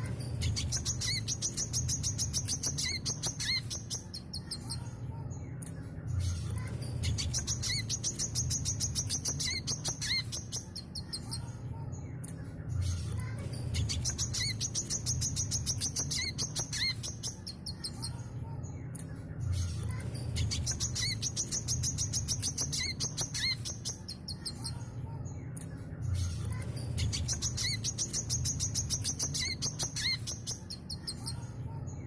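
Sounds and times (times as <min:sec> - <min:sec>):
sunbird twittering song: 0:00.3 - 0:04.8, 0:07.0 - 0:11.5, 0:13.7 - 0:18.2, 0:20.3 - 0:24.8, 0:26.9 - 0:31.4.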